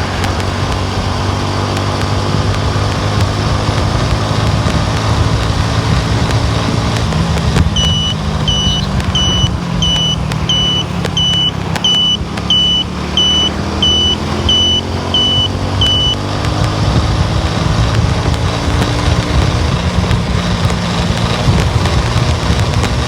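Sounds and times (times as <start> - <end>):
car driving rumble from inside: 0.0 - 23.0
dashboard warning beep: 7.7 - 16.3.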